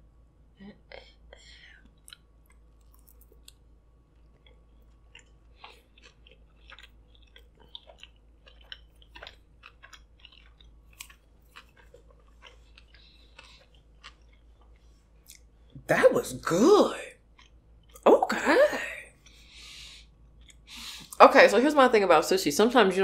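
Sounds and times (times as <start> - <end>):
person chewing crunchy food: 1.7 - 15.8, 17.2 - 18.2, 19.1 - 21.2.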